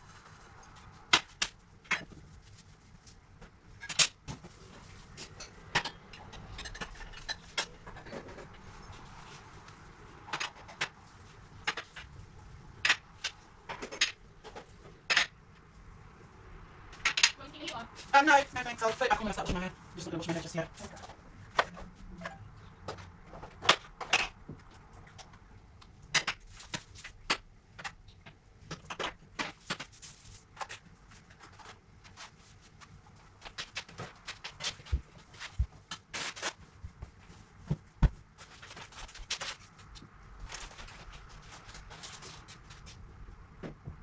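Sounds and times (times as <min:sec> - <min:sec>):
household objects clicking and knocking: 0:10.2 - 0:11.0.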